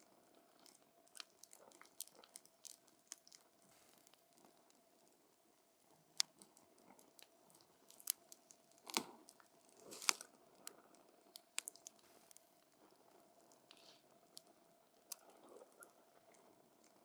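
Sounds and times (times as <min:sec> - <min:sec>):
campfire crackling and popping: 0:11.4 - 0:12.4
faint hiss: 0:11.4 - 0:16.0.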